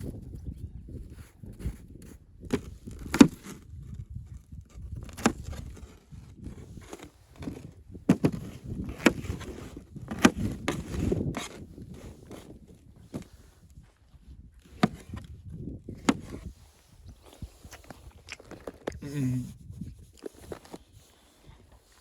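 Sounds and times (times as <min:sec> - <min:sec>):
scraping and shuffling: 0:04.7 - 0:22.0.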